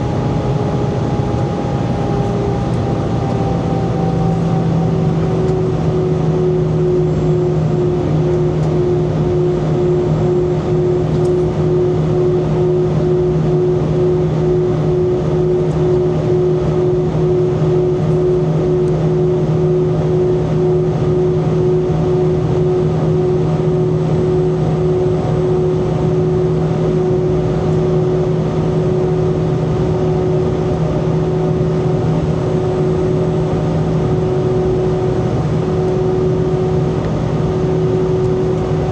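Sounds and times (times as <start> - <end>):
steady hums: 0.0 - 13.8
jet engine drone in cabin: 0.0 - 38.9.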